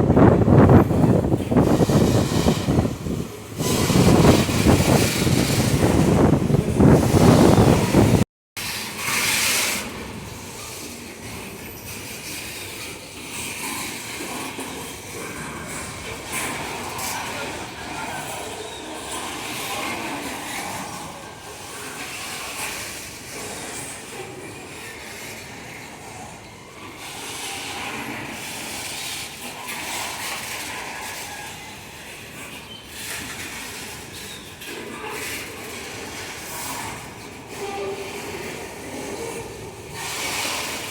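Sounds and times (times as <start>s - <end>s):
freight train rolling on rails: 0.0s - 40.9s
wheel squeals: 24.8s - 40.9s.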